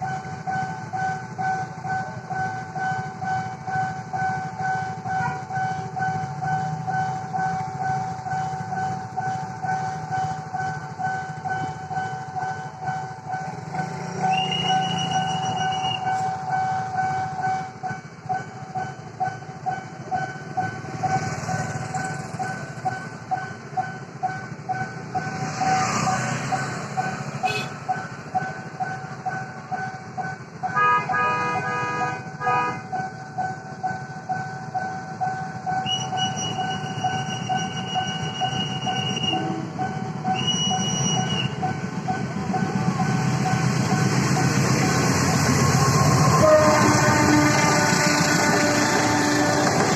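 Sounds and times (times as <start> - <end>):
level-crossing warning bell: 0.0 - 49.9
train passing: 0.0 - 49.9
train horn: 5.1 - 5.6, 27.4 - 27.8, 30.7 - 32.9, 35.9 - 39.8, 45.7 - 49.9.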